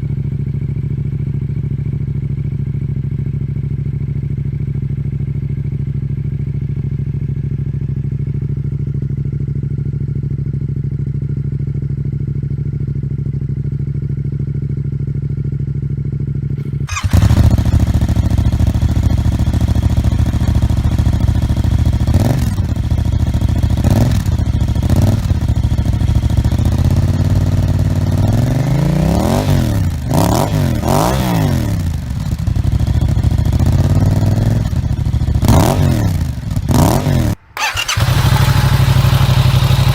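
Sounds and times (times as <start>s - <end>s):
motorcycle engine idling: 0.0s - 39.9s
motorcycle engine revving: 16.6s - 39.9s.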